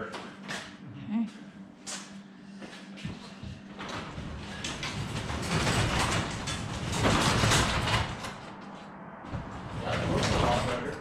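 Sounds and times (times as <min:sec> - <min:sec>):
garage door rollers rumbling: 0:03.7 - 0:11.0.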